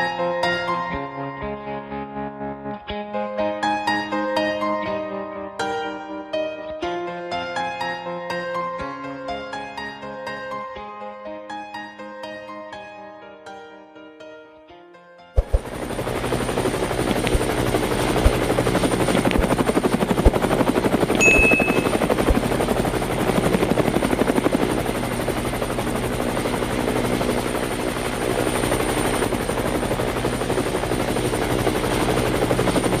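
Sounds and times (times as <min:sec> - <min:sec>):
high steady whine: 0:15.4 - 0:22.9
helicopter rotor chop: 0:15.4 - 0:33.0.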